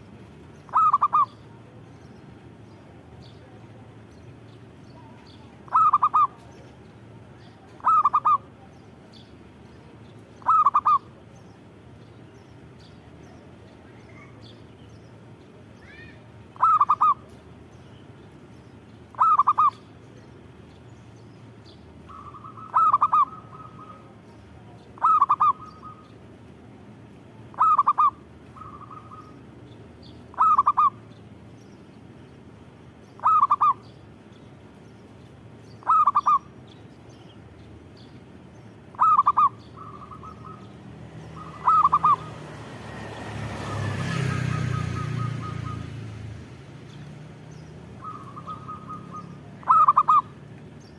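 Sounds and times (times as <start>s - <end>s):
dove cooing: 0.7s - 1.7s, 5.0s - 6.6s, 7.6s - 8.7s, 10.4s - 11.2s, 16.6s - 17.3s, 19.1s - 19.8s, 22.1s - 26.2s, 27.5s - 29.4s, 30.3s - 31.0s, 33.2s - 33.8s, 35.8s - 36.5s, 38.9s - 42.4s, 43.7s - 45.9s, 48.0s - 50.4s.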